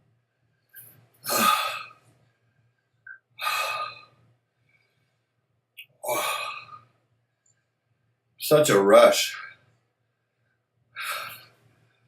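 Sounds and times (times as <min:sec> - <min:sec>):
man breathing hard: 0:01.2 - 0:02.2, 0:03.4 - 0:05.4, 0:11.0 - 0:12.0.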